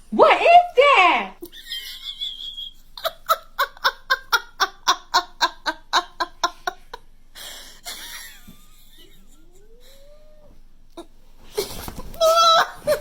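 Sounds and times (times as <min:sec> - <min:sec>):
quiet hiss: 0:00.0 - 0:13.0
person laughing hard: 0:01.4 - 0:10.2, 0:11.0 - 0:13.0
faint rising cry: 0:09.3 - 0:11.1, 0:12.2 - 0:13.0.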